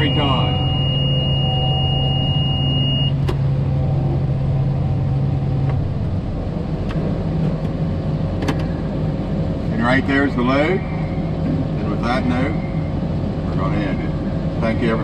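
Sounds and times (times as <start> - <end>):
high warning beep: 0.0 - 3.2
tractor engine running: 0.0 - 9.8.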